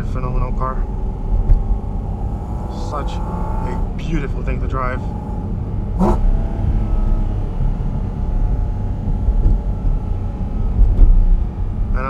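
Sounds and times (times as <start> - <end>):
car engine running: 0.0 - 12.0
low road rumble: 0.0 - 12.0.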